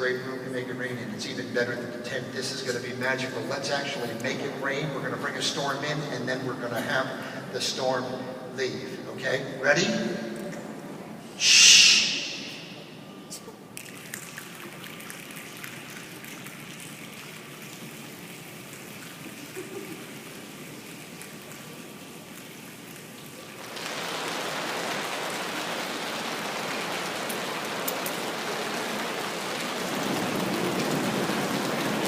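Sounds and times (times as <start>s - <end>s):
body percussion rainstorm: 13.8s - 32.0s.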